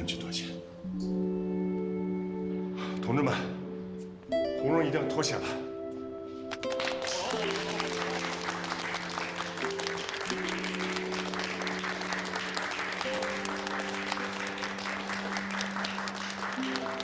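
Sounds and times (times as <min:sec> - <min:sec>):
people applauding: 0:06.5 - 0:17.0.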